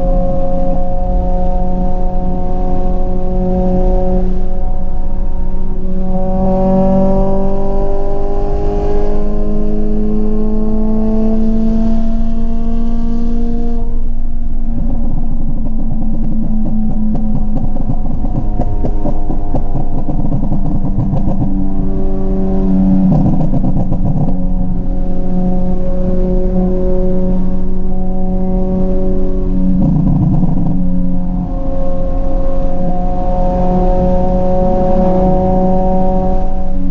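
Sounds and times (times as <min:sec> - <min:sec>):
exhaust crackling and popping: 0:14.0 - 0:33.4.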